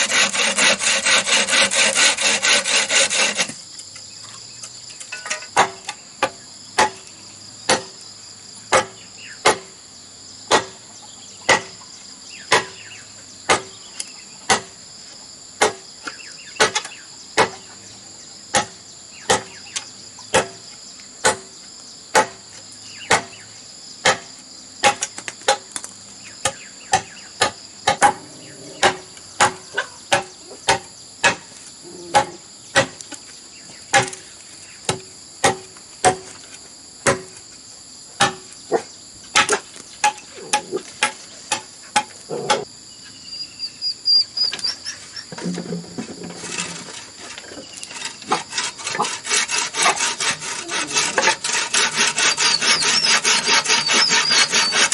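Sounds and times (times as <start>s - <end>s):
hand tool striking wood: 0.0s - 3.6s, 5.0s - 7.1s, 7.7s - 8.0s, 8.7s - 9.7s, 10.5s - 10.8s, 11.5s - 11.8s, 12.5s - 12.9s, 13.5s - 14.8s, 15.6s - 17.6s, 18.5s - 20.6s, 21.2s - 21.5s, 22.1s - 22.4s, 23.1s - 23.4s, 24.0s - 28.2s, 28.8s - 31.5s, 32.1s - 33.2s, 33.9s - 34.2s, 34.9s - 36.4s, 37.0s - 37.4s, 38.2s - 38.5s, 39.3s - 42.7s, 45.3s - 54.9s
high-pitched insect drone: 46.5s - 54.9s.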